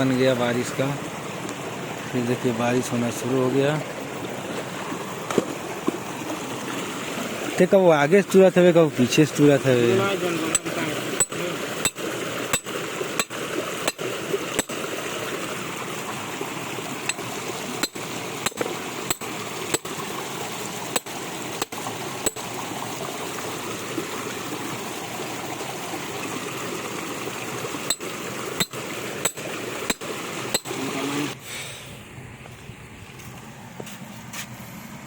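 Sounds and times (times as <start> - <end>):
sharp short knocks: 10.6 - 14.8, 17.1 - 20.0.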